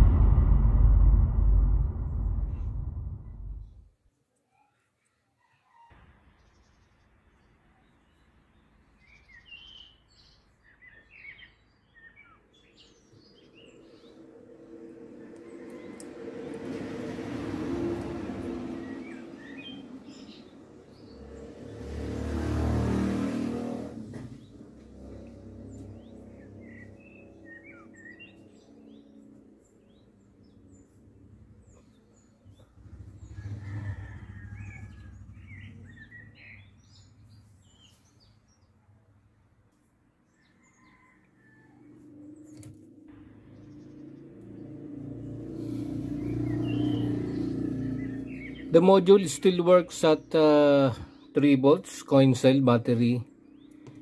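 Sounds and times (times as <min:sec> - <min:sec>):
low steady hum: 0:00.0 - 0:03.8
birds chirping: 0:24.3 - 0:38.8, 0:42.2 - 0:54.0.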